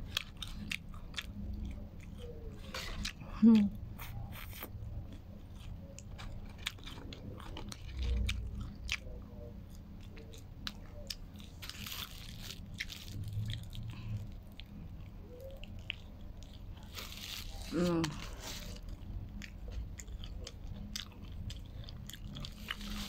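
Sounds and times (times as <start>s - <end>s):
person chewing food: 0.0s - 23.0s
crisp crunches: 10.7s - 14.4s, 15.4s - 20.6s, 22.1s - 23.0s.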